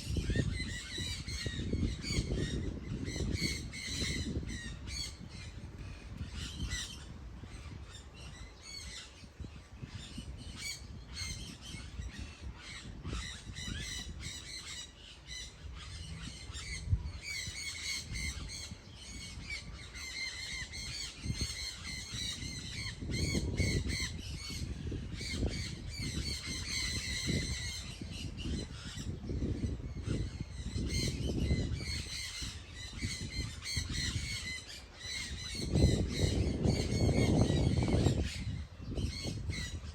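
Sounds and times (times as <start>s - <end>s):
flock of birds calling harshly: 0.0s - 39.9s
low rumbling noise: 15.5s - 18.2s.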